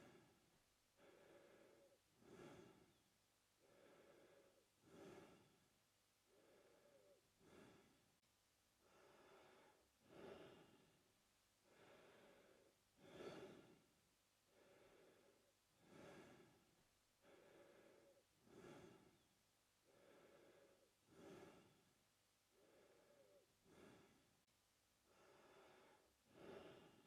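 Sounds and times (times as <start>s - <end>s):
man breathing through mouth: 1.0s - 3.0s, 3.6s - 5.6s, 6.3s - 8.0s, 11.6s - 13.8s, 14.5s - 19.2s, 19.9s - 21.8s, 22.5s - 24.3s, 25.1s - 27.0s.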